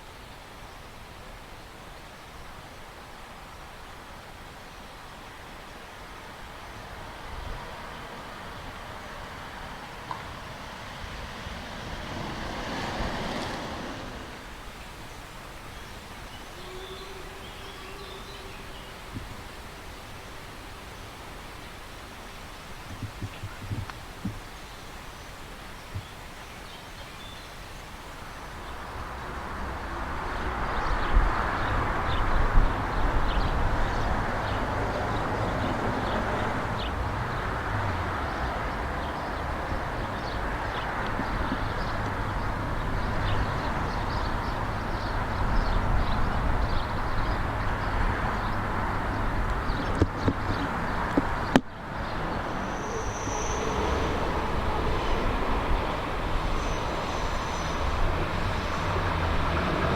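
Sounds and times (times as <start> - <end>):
train rumbling by: 10.4 - 14.8, 50.5 - 59.9.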